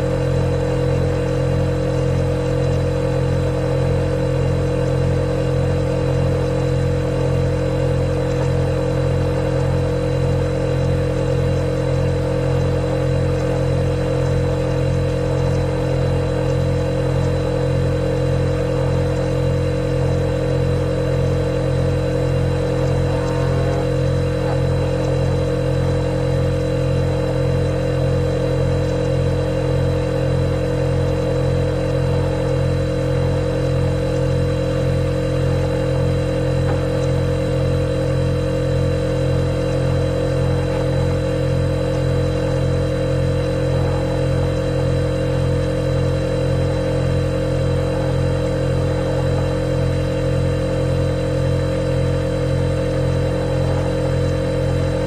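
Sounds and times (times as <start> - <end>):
refrigerator humming: 0.0 - 55.0.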